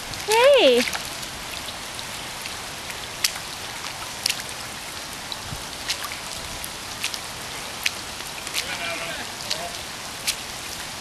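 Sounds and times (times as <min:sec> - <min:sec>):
sharp taps of raindrops: 0:00.0 - 0:08.8, 0:09.4 - 0:10.7
rain hissing: 0:00.0 - 0:11.0.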